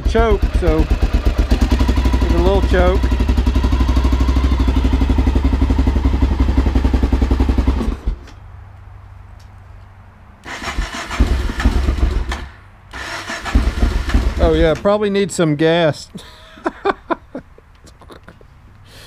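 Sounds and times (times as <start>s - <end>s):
motorcycle engine running: 0.0s - 8.3s, 10.5s - 12.3s, 13.4s - 14.8s
engine cranking: 10.4s - 14.8s.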